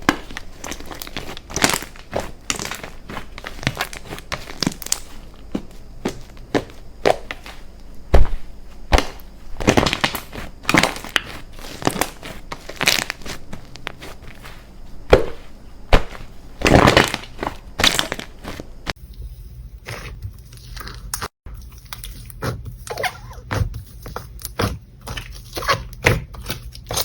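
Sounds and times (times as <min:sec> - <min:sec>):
slime squished by hand: 0:00.0 - 0:07.5.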